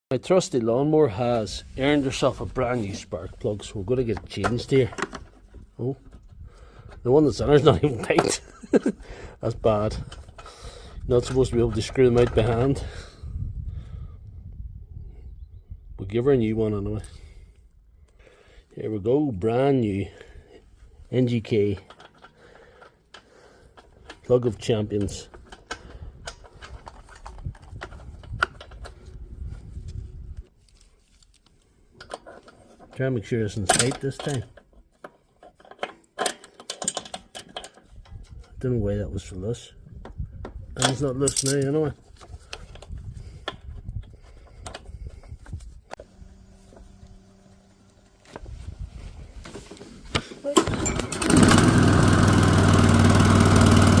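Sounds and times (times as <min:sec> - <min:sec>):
metal clicks and knocks: 0:04.0 - 0:07.1, 0:11.2 - 0:12.8, 0:21.6 - 0:28.9, 0:32.0 - 0:38.6
rattles and knocks: 0:21.7 - 0:29.1
lawn mower engine running: 0:46.0 - 0:48.5, 0:49.5 - 0:54.0.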